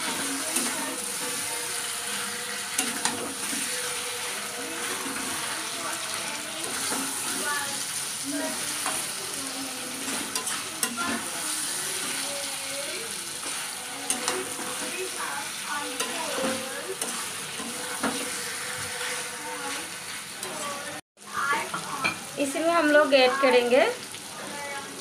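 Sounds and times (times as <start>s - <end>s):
spatula scraping and knocking pan: 0.0s - 7.9s, 9.9s - 12.4s, 13.4s - 20.7s
chicken and onion sizzling: 0.0s - 25.0s.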